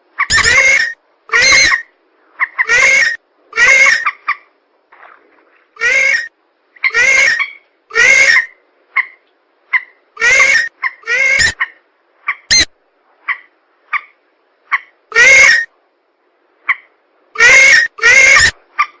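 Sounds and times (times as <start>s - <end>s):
harsh bird calls: 17.4s - 18.6s.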